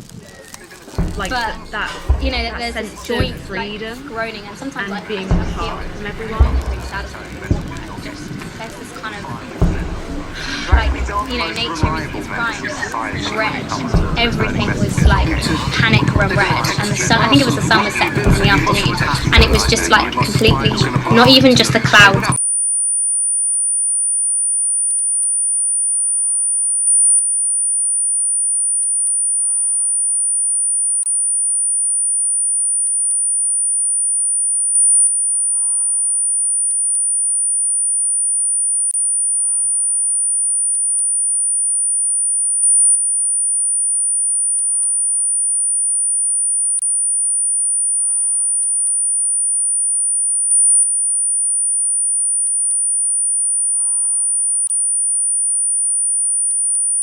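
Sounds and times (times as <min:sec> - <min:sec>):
soft low blips: 0:00.9 - 0:22.0.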